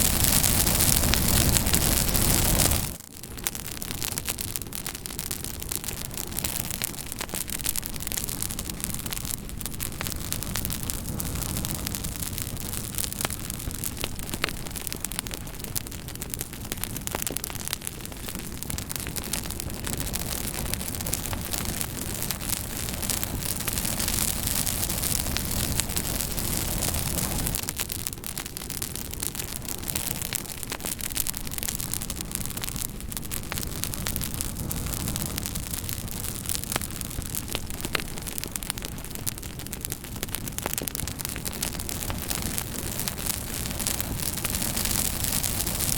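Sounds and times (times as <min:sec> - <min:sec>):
campfire hissing: 0:00.0 - 0:45.9
fire crackling and popping: 0:00.0 - 0:45.9.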